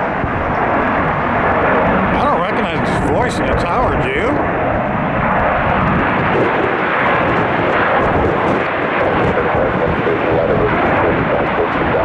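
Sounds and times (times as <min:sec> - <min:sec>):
jet engines rushing: 0:00.0 - 0:12.0
wind buffeting microphone: 0:00.0 - 0:12.0.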